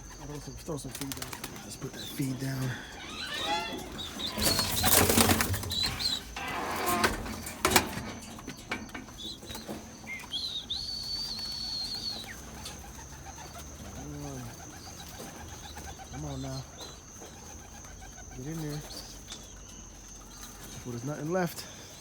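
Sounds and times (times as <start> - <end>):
pigeons cooing: 0.0 - 22.0
pigeon wings flapping: 0.9 - 1.9.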